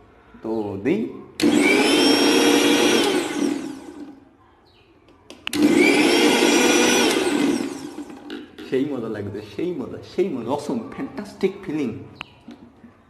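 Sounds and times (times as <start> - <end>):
mixer grinder motor whining: 1.4 - 4.2, 5.5 - 8.5.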